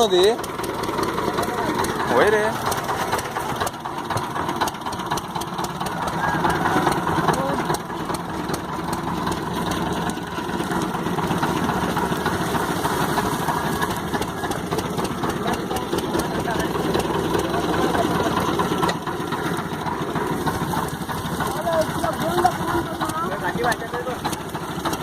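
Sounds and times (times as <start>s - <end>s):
boat engine running: 0.0s - 25.0s.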